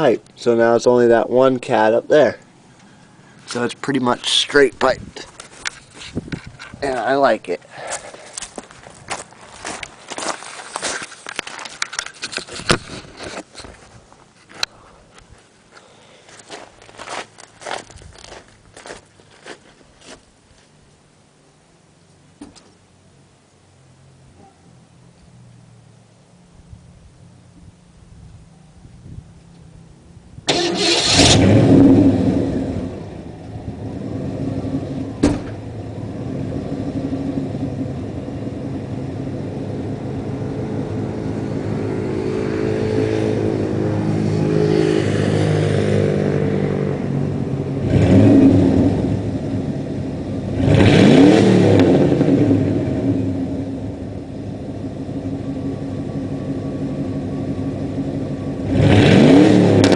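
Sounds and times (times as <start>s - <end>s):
truck engine revving: 30.5s - 35.6s, 36.2s - 49.8s, 50.4s - 53.7s, 57.1s - 59.9s.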